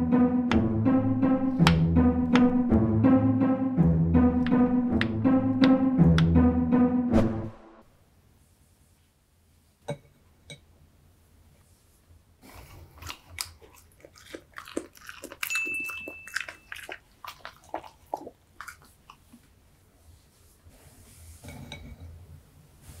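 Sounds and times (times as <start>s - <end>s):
dog chewing: 12.5s - 19.5s.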